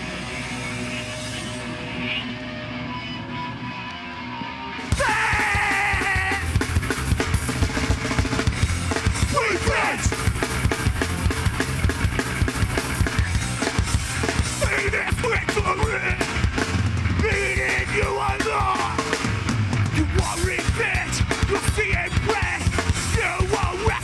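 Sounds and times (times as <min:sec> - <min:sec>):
distorted guitars: 0:00.0 - 0:24.0
pounding drums: 0:04.9 - 0:24.0.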